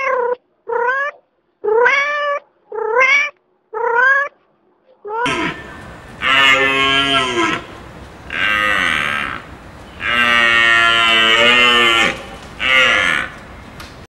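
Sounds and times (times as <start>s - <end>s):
animal mooing calls: 5.2s - 13.5s.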